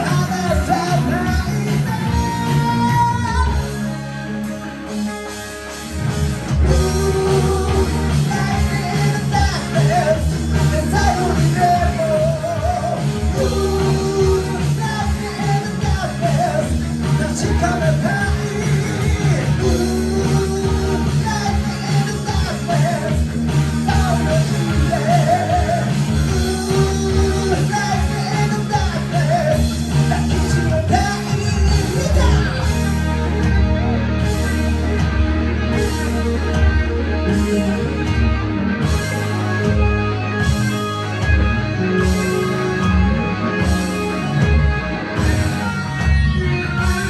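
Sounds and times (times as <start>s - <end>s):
bending lead melody: 0.0s - 47.0s
live hard rock band: 0.0s - 47.0s.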